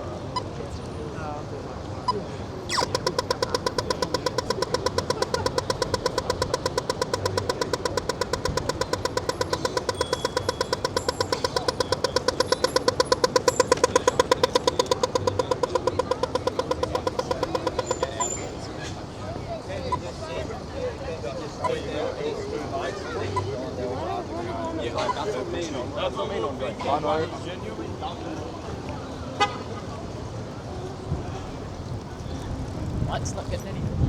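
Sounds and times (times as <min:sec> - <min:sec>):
crossing signal ticking: 0:02.7 - 0:18.6.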